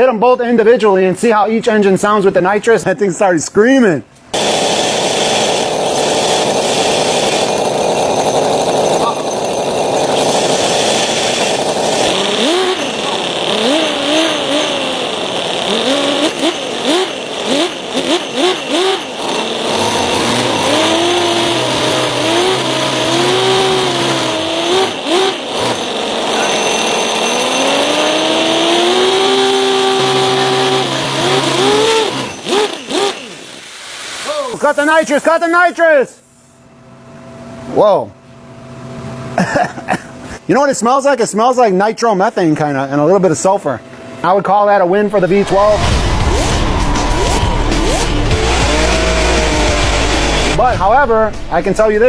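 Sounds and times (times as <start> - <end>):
model engines screaming: 8.8 - 33.6, 45.2 - 51.0.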